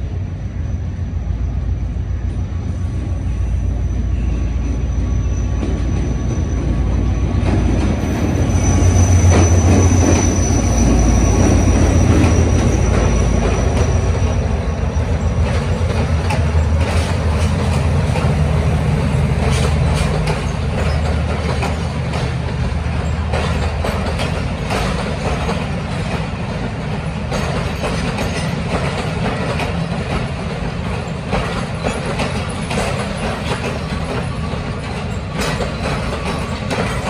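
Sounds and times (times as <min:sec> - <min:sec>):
diesel locomotive rumble: 0:00.0 - 0:37.0
wheels clacking over rail joints: 0:07.4 - 0:37.0
thin high squeal: 0:08.0 - 0:15.3.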